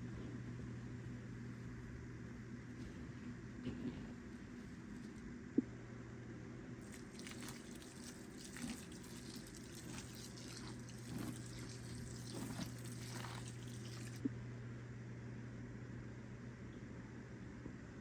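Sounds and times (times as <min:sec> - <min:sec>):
steady low hum: 0:00.0 - 0:18.0
water trickling and dripping: 0:06.8 - 0:14.2.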